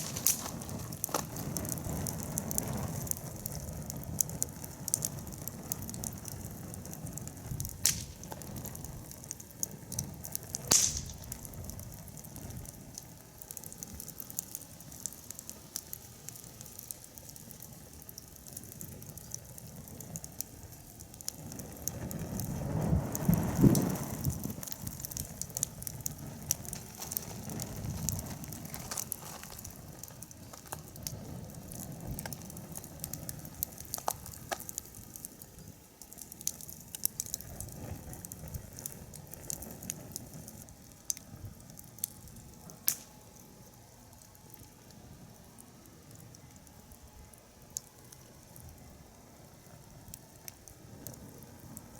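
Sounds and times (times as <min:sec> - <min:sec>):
fire popping: 0:00.0 - 0:51.9
wood fire crackling: 0:00.0 - 0:51.9.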